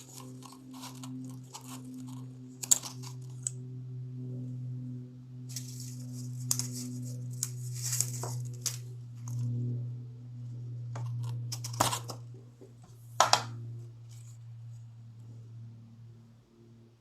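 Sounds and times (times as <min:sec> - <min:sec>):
paper crinkling and rustling: 0:00.0 - 0:03.5, 0:05.5 - 0:09.4, 0:11.0 - 0:12.4
steady low hum: 0:00.0 - 0:17.0.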